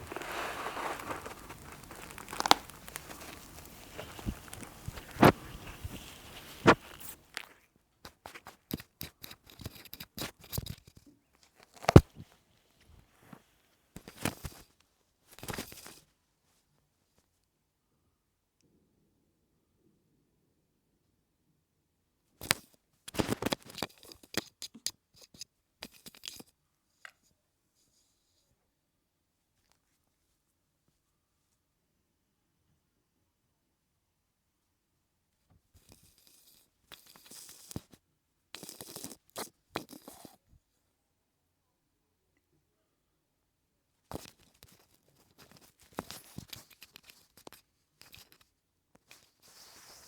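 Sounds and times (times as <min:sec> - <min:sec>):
cat kneading creaking bed: 0:00.0 - 0:07.1.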